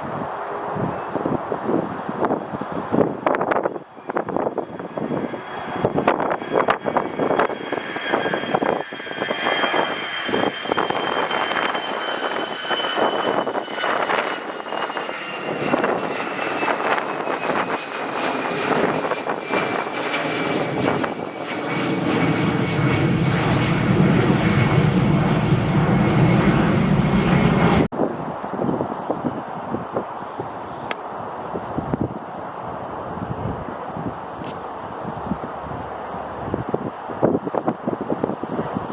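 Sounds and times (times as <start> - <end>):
airliner engines passing: 0.0 - 38.9
deep rumble: 4.7 - 28.0.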